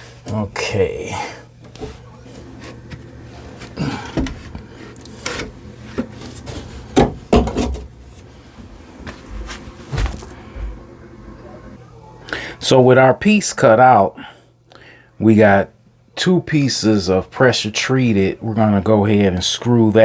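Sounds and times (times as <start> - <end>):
wood scraping: 1.6 - 10.8.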